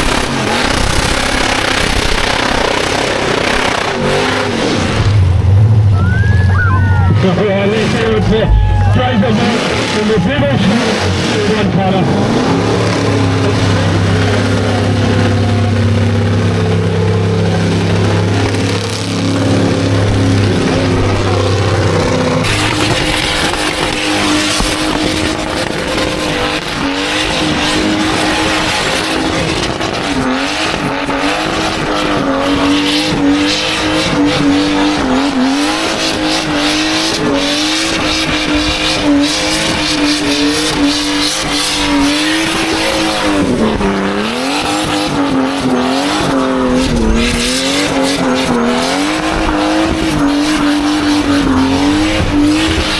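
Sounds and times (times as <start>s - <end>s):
car engine revving high: 0.0s - 52.9s
tyres squealing: 5.9s - 31.6s, 35.4s - 49.3s.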